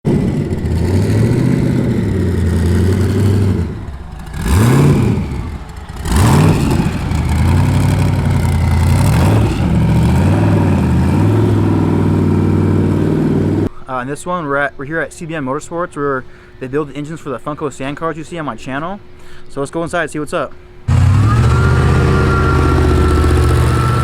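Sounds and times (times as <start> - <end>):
vehicle engine revving: 0.1 - 13.7, 20.9 - 24.0.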